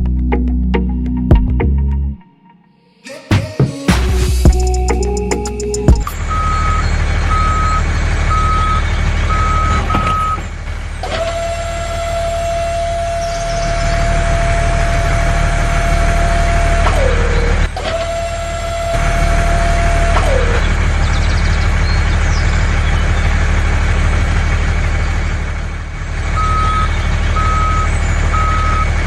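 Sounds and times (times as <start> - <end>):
truck engine running: 4.2 - 29.0
reversing alarm beeping: 6.0 - 21.4, 26.0 - 29.0.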